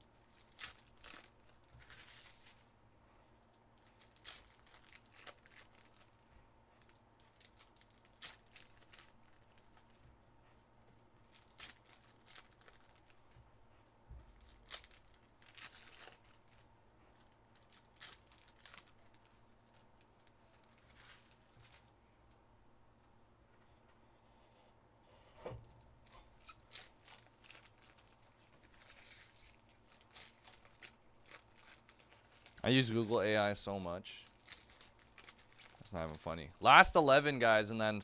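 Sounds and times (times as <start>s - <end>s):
foil wrappers tearing: 0.2s - 2.6s, 3.8s - 6.2s, 6.8s - 10.0s, 11.2s - 13.2s, 14.3s - 16.6s, 17.2s - 21.9s, 26.3s - 33.4s, 34.2s - 36.3s.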